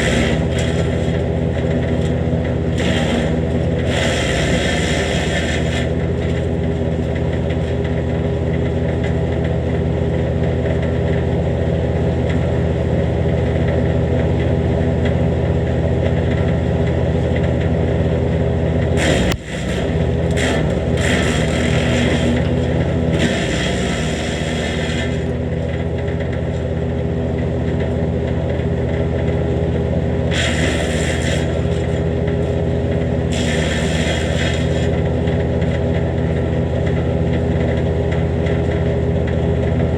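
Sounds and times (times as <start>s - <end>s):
branches grinding in chipper: 0.0s - 8.4s, 18.9s - 27.6s, 28.9s - 36.6s
wood chipper running: 0.0s - 39.9s.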